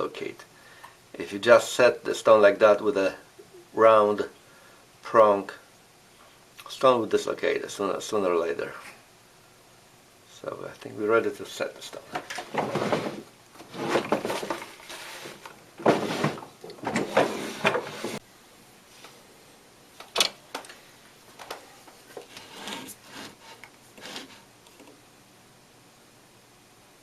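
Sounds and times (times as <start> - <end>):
tools clattering and scraping: 12.1 - 18.2.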